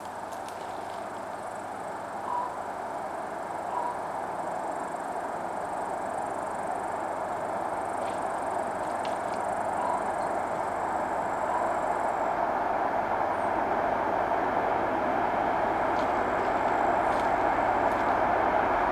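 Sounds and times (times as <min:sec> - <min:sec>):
faint high whine: 0:00.1 - 0:18.9
train rushing rumble: 0:06.9 - 0:18.9.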